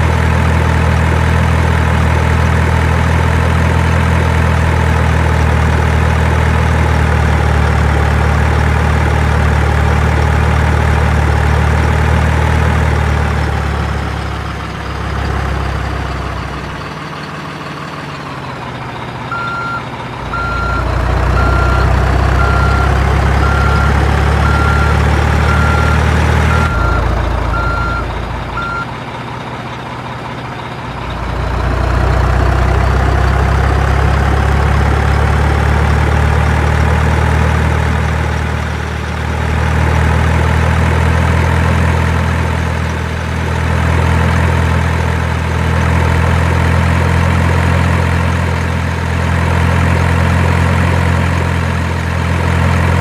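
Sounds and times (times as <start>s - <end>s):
heavy truck engine running: 0.0s - 53.0s
reversing alarm beeping: 19.3s - 28.9s.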